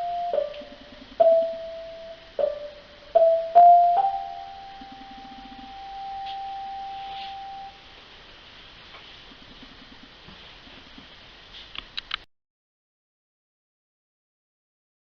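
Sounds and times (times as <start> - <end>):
bell-like notes: 0.0 - 7.8.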